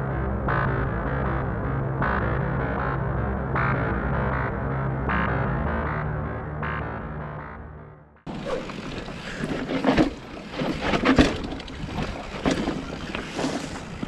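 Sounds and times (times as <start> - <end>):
mountain bike knocks and rattles: 8.3 - 14.0
wind buffeting microphone: 8.3 - 14.0.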